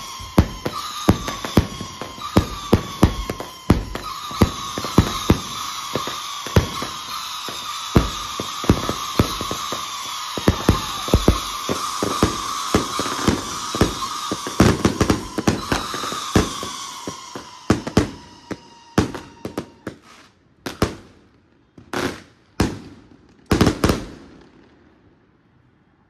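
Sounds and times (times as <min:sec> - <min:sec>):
high falling whistle: 0:00.0 - 0:19.9
fireworks bangs and crackles: 0:00.0 - 0:25.2.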